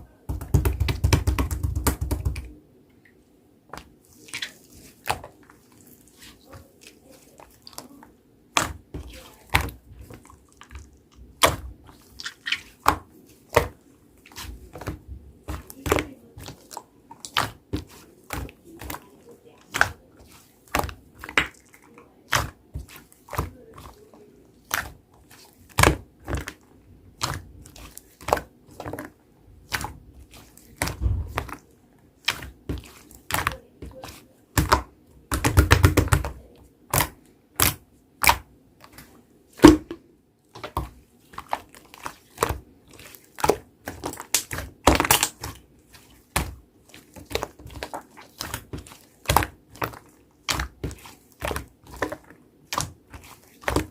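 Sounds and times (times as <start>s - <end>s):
slime squelch: 0.0s - 53.9s
slime clicking and popping: 34.6s - 39.0s, 43.4s - 45.6s.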